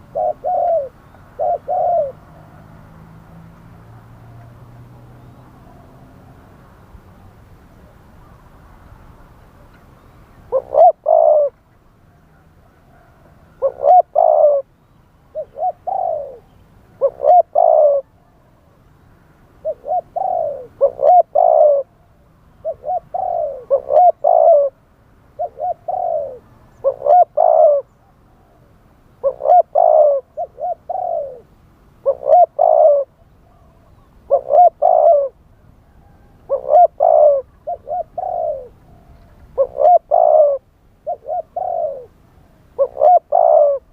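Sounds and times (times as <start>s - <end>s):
dove cooing: 0.0s - 2.8s, 10.5s - 14.7s, 15.3s - 18.8s, 19.5s - 43.9s.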